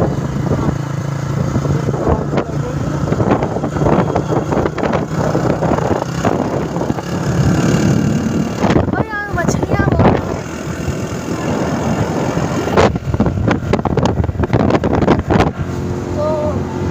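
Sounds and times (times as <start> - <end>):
motorcycle engine humming: 0.0 - 16.9
wind and road noise: 0.0 - 16.9.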